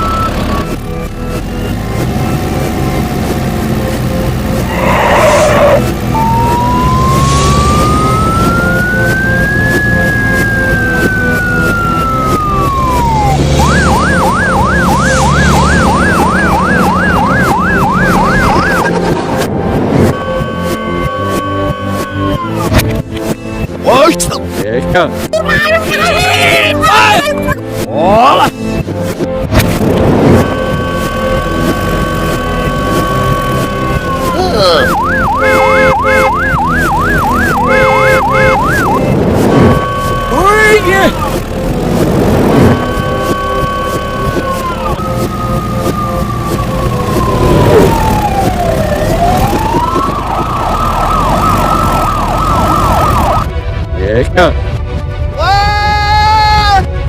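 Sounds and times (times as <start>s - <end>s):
electronic siren wailing: 0.0s - 3.0s, 4.5s - 22.7s, 29.8s - 53.6s
background music: 0.0s - 57.0s.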